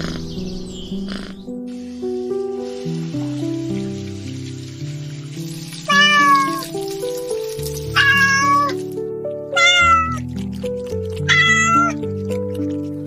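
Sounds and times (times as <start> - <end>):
light background music: 0.0 - 13.0
cat meowing: 5.9 - 6.7, 7.9 - 8.8, 9.5 - 10.2, 11.2 - 12.0.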